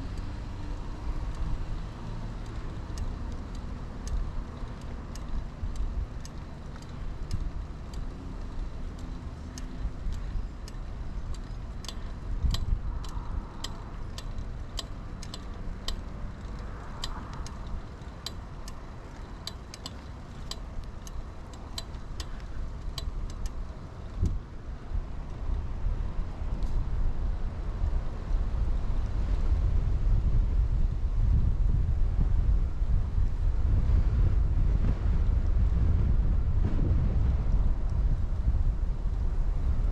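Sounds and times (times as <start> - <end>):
light uneven ticking: 0.0 - 25.6
bike tyre rolling: 0.0 - 39.9
wind rumble on microphone: 0.0 - 39.9.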